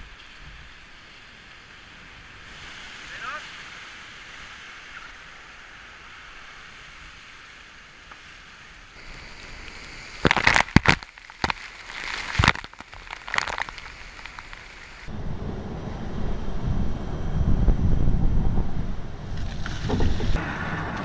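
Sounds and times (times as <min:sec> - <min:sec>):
rushing seawater: 0:00.9 - 0:10.3
waves crashing on deck: 0:02.4 - 0:05.1
wind hissing: 0:13.6 - 0:21.0.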